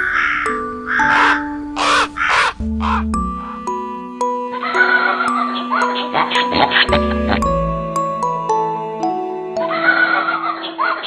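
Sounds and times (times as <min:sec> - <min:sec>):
crow cawing: 0:00.0 - 0:02.5
background music: 0:00.0 - 0:11.0.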